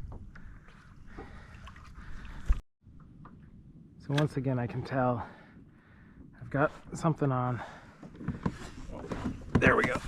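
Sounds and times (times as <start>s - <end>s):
water noise: 0.0s - 4.3s.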